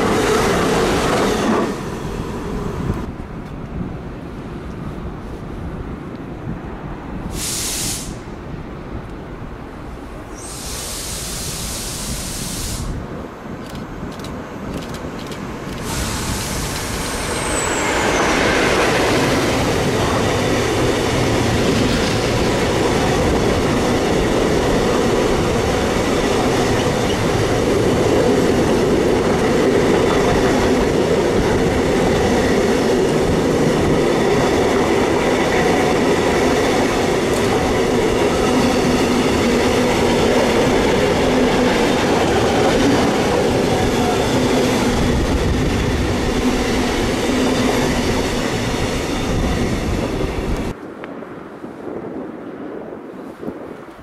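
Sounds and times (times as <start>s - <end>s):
freight train rumbling past: 0.0s - 53.9s.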